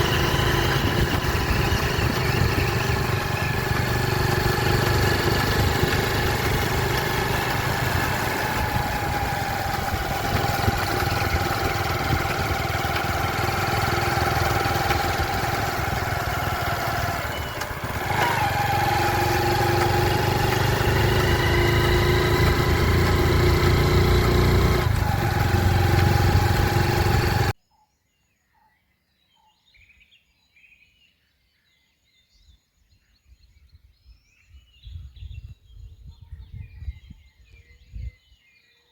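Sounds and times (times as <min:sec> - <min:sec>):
pitched engine tones: 0:00.0 - 0:27.6
vehicle engine running: 0:00.0 - 0:27.6.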